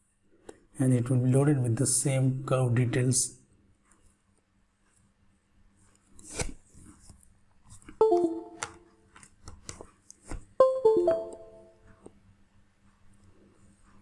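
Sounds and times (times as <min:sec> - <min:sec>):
ringing chime notes: 0:08.0 - 0:08.9, 0:10.6 - 0:11.8.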